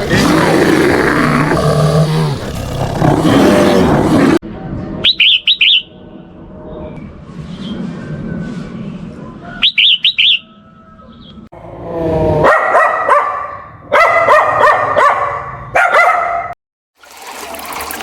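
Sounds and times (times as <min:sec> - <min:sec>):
high bird chirps: 0:05.0 - 0:06.0, 0:09.4 - 0:11.5.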